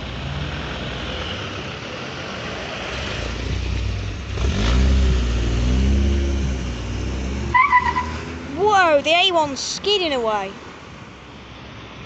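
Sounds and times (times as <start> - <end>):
car engine revving: 2.9 - 8.6.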